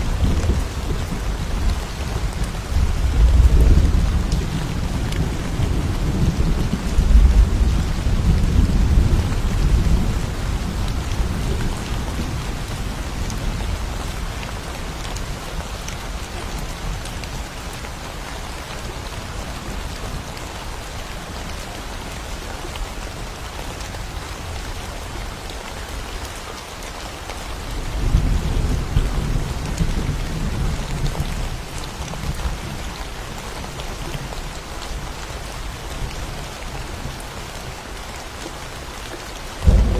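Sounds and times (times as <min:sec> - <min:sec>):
low thunder rumbling: 0:00.0 - 0:15.4, 0:27.6 - 0:32.9, 0:39.6 - 0:39.9
steady rain falling: 0:00.0 - 0:39.9.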